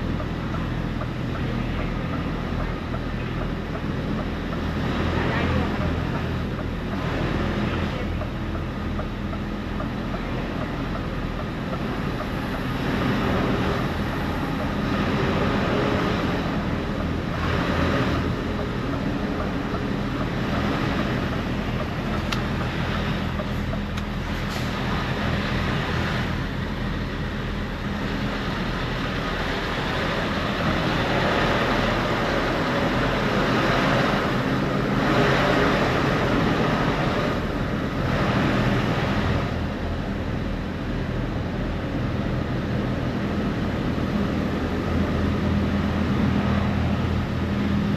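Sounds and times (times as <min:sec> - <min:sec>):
large engine humming: 0:00.0 - 0:47.9
rumble of wind and road noise: 0:00.0 - 0:47.9.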